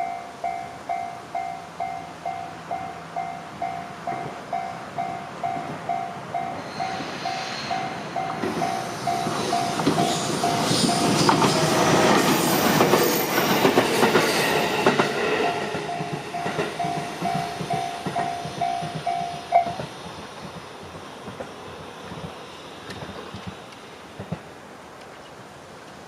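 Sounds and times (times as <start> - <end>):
train wheels clattering over joints: 8.2 - 23.6.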